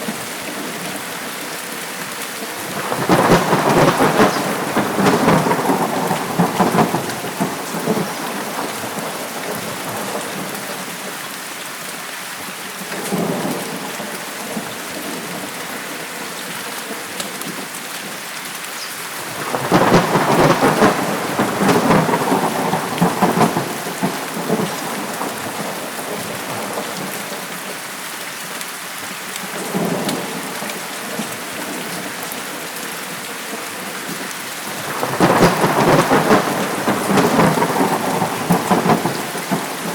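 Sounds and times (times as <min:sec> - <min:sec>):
heavy rain: 0:00.0 - 0:39.9
thunder rolling: 0:02.6 - 0:10.5, 0:19.2 - 0:27.4, 0:34.7 - 0:39.9.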